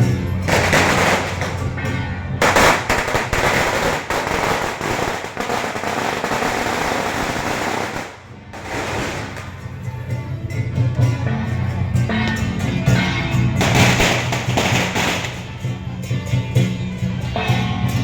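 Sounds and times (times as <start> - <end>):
firecrackers crackling: 0.4 - 9.9, 13.6 - 15.7.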